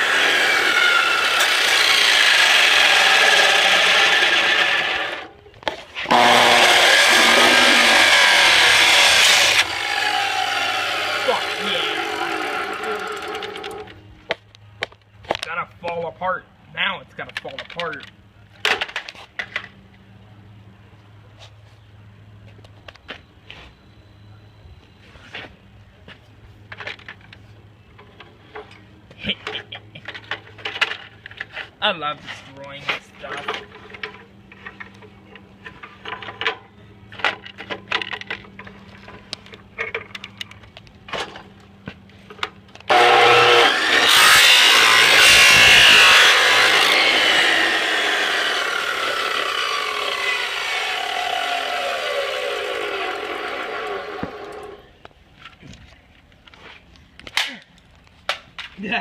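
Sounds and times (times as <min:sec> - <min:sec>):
chop saw cutting plastic: 0:00.0 - 0:05.2, 0:06.0 - 0:13.8, 0:42.9 - 0:54.8.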